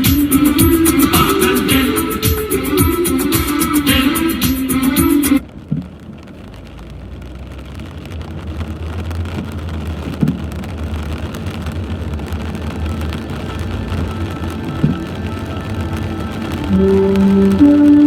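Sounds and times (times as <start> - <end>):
steady rain: 0.0 - 18.0
low rumble: 11.2 - 18.0.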